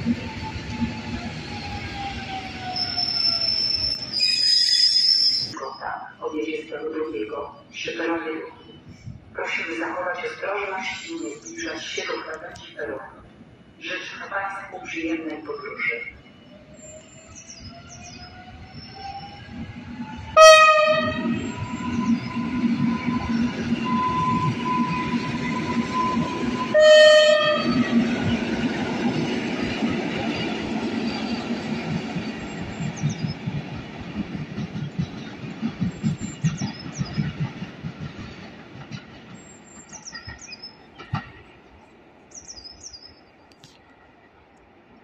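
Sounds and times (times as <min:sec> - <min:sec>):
electric train whine: 0:00.0 - 0:45.0
birds chirping: 0:14.2 - 0:20.4, 0:21.2 - 0:26.6, 0:27.5 - 0:38.5, 0:39.1 - 0:43.7
train wheel rumble: 0:16.3 - 0:42.3
train horn blast: 0:20.4 - 0:21.4, 0:26.0 - 0:28.0.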